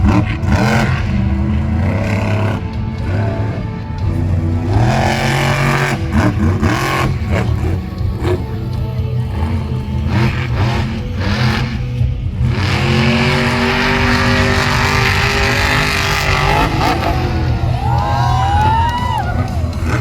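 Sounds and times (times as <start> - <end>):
monster truck engine revving: 0.0 - 20.0.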